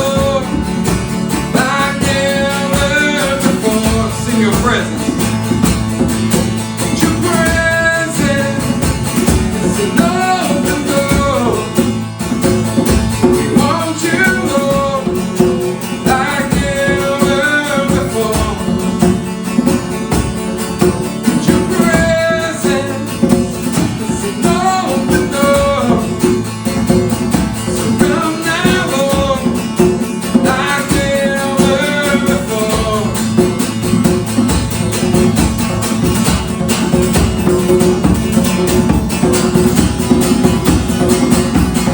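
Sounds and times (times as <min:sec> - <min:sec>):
person singing: 0:00.0 - 0:05.2, 0:06.8 - 0:12.0, 0:13.2 - 0:19.2, 0:21.2 - 0:26.5, 0:27.8 - 0:33.6
strummed acoustic guitar: 0:00.0 - 0:41.9.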